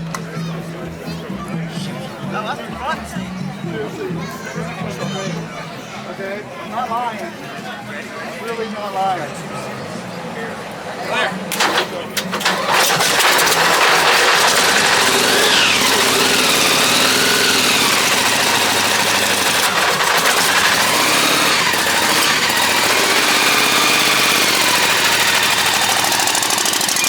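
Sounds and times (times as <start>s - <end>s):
car engine revving: 11.4s - 27.0s.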